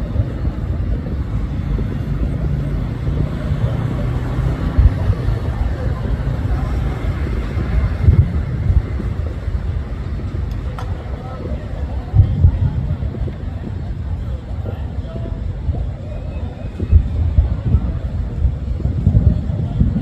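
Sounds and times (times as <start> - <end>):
city traffic rumble: 0.0 - 20.0
distant fireworks: 0.0 - 20.0
wind on microphone: 0.0 - 20.0.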